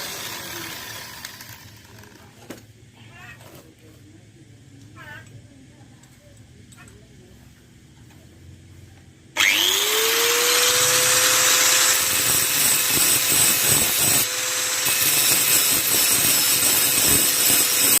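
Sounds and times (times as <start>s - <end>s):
angle grinder motor whine: 0.0s - 2.0s, 9.4s - 18.0s.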